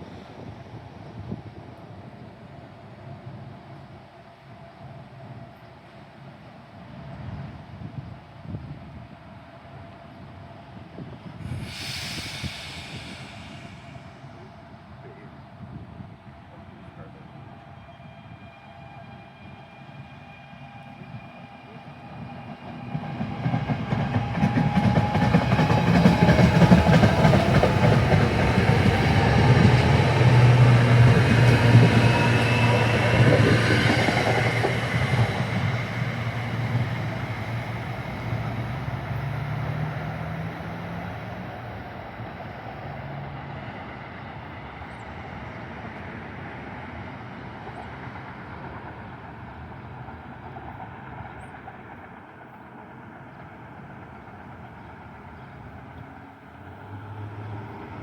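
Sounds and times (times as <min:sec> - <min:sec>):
train engine humming: 0:08.3 - 0:58.0
train wheels clattering on rails: 0:22.4 - 0:40.0.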